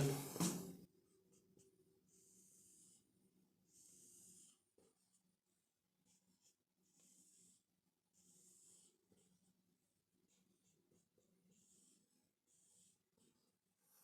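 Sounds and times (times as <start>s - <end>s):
marker scratching on whiteboard: 8.2s - 14.0s.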